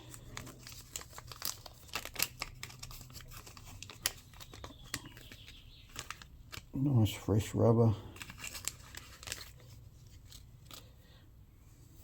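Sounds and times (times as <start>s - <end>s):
small parts crinkling and clicking: 0.0s - 6.8s, 8.2s - 11.0s.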